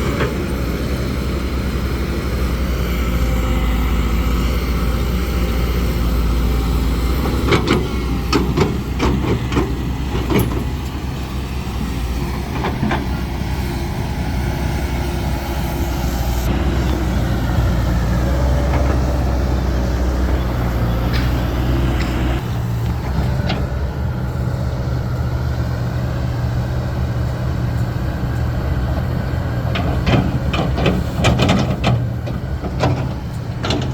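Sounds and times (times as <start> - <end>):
heavy diesel machinery running: 0.0 - 33.9
metallic clanks and knocks: 29.7 - 33.9.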